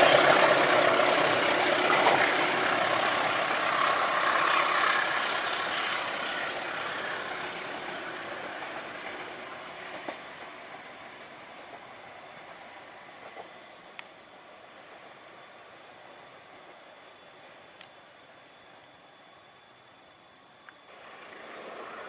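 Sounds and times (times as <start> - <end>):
train coaches rumbling on rails: 0.0 - 19.8, 20.9 - 22.0
faint click: 13.9 - 14.1, 17.8 - 18.0.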